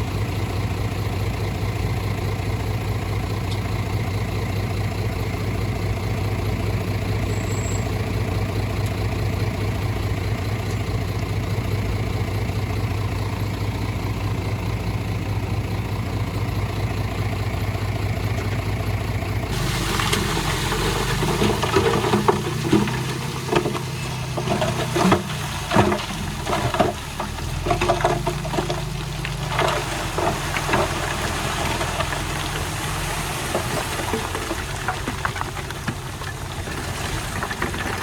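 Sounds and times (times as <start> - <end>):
diesel engine of heavy machinery: 0.0 - 38.0
stone and metal clanking: 19.5 - 32.4.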